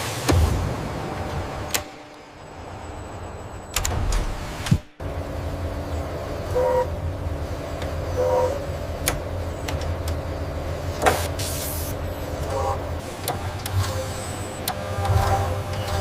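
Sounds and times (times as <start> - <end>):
factory machinery hum: 0.0 - 16.0.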